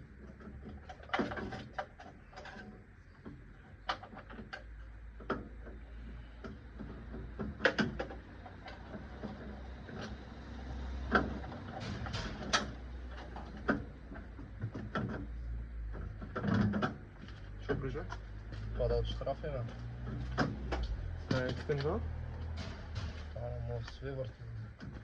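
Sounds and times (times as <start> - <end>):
low steady rumble: 0.0 - 25.0
metal tools clicking and knocking: 20.0 - 23.4.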